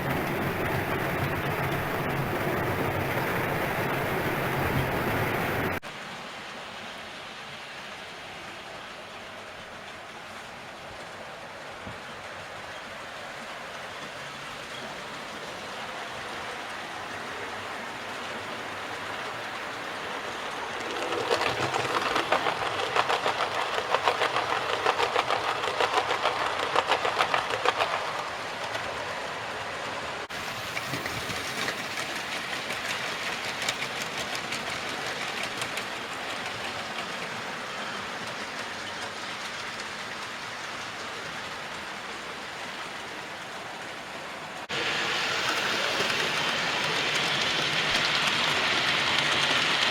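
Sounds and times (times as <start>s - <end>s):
wheels clattering over rail joints: 0.0s - 5.8s, 17.1s - 41.9s
model train running on track: 0.0s - 49.9s.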